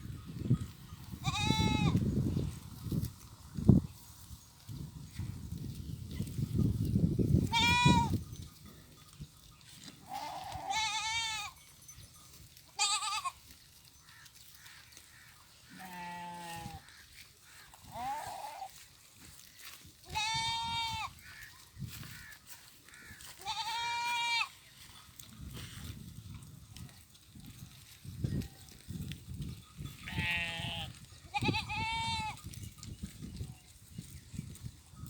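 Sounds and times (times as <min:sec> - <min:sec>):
goats and sheep bleating: 0:01.0 - 0:02.2, 0:07.4 - 0:08.2, 0:08.8 - 0:26.0, 0:27.8 - 0:32.9.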